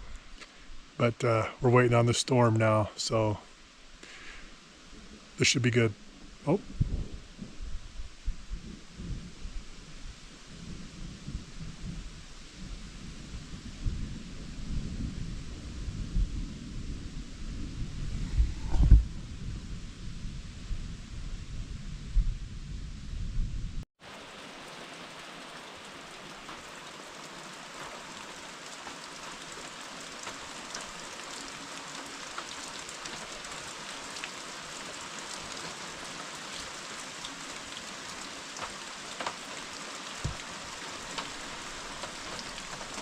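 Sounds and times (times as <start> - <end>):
heavy rain: 0.0 - 22.0, 24.0 - 43.0
thunder rumble: 6.6 - 23.8.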